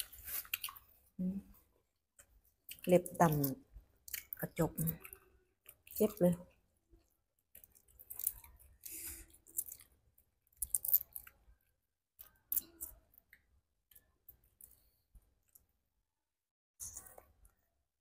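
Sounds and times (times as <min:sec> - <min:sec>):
crisp crunching chewing: 0:00.0 - 0:00.9, 0:07.5 - 0:10.0, 0:10.6 - 0:11.4.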